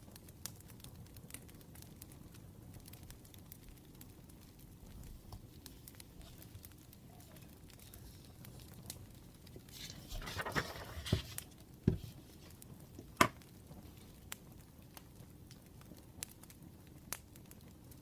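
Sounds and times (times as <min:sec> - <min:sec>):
fire popping: 0:00.0 - 0:18.0
wood fire crackling: 0:00.0 - 0:18.0
rustling noise: 0:09.4 - 0:14.2.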